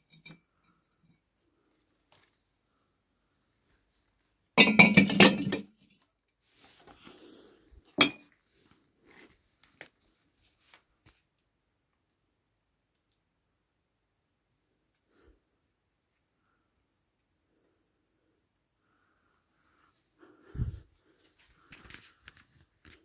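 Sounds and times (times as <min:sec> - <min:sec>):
hard objects clattering: 0:04.6 - 0:05.8.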